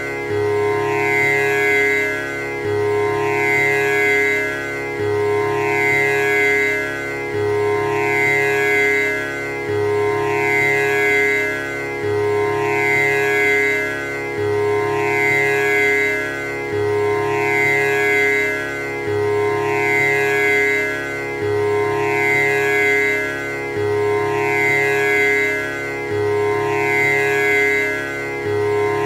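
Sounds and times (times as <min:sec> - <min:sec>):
tanpura drone: 0:00.0 - 0:29.0.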